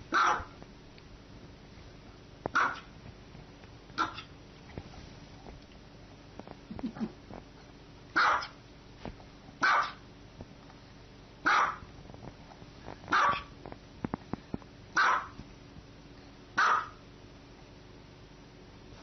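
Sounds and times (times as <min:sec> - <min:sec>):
dog barking: 0:00.1 - 0:00.5, 0:02.5 - 0:02.9, 0:04.0 - 0:04.3, 0:08.2 - 0:08.6, 0:09.6 - 0:10.0, 0:11.4 - 0:11.8, 0:13.1 - 0:13.5, 0:15.0 - 0:15.4, 0:16.6 - 0:17.0.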